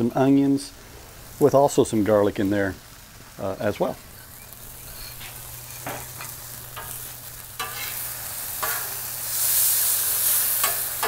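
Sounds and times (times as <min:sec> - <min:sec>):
meat sizzling on a griddle: 0:00.0 - 0:11.0
metal spatula scraping steel: 0:05.0 - 0:11.0.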